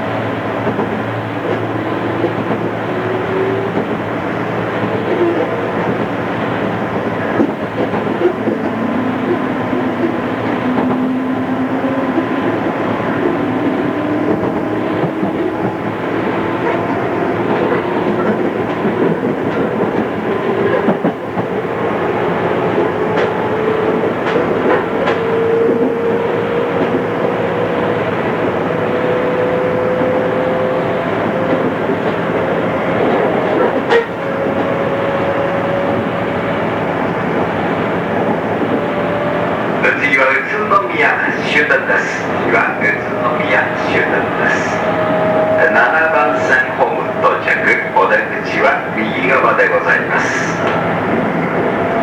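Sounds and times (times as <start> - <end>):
rail joint clicks: 0.0 - 52.0
train wheels rumbling: 0.0 - 52.0.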